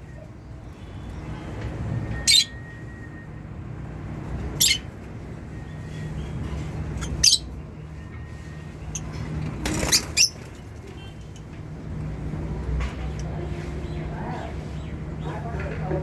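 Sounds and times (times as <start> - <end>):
lovebirds chirping: 2.2 - 2.6, 4.5 - 4.9, 5.8 - 7.6.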